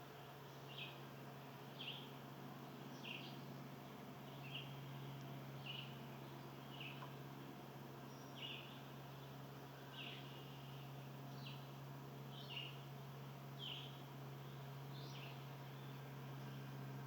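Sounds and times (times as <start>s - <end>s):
steady low hum: 0.0s - 17.0s
bird chirping: 1.8s - 2.1s, 2.9s - 3.4s, 4.2s - 7.1s, 8.1s - 9.3s, 13.6s - 16.7s.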